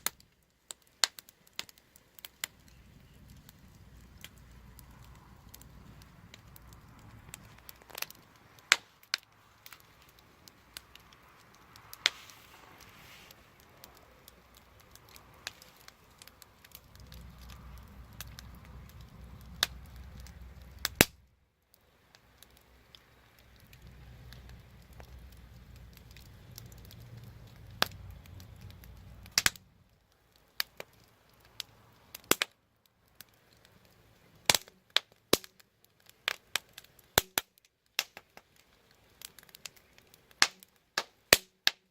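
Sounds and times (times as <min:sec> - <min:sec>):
wood fire crackling and popping: 0:00.0 - 0:41.9
low rumble: 0:02.6 - 0:21.3, 0:23.5 - 0:30.0.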